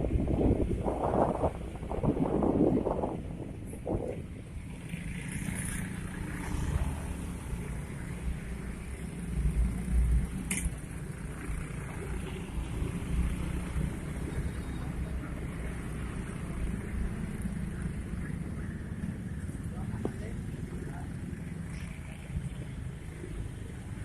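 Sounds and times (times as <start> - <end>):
wind buffeting microphone: 0.0 - 5.1
vehicle rumble: 0.0 - 24.0.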